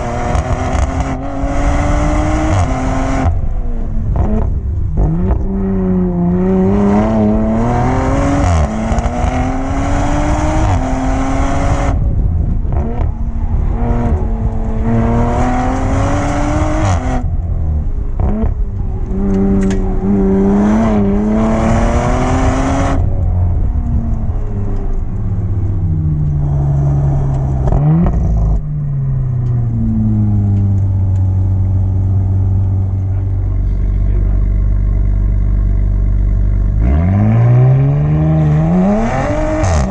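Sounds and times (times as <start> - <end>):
car engine revving hard: 0.0 - 3.5, 4.1 - 17.4, 18.2 - 23.2, 32.4 - 39.9.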